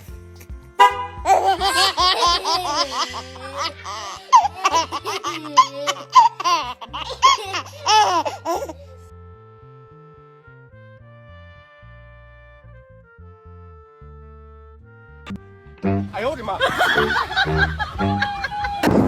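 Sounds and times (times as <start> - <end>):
background music: 0.0 - 19.0
baby laughing: 1.1 - 8.9.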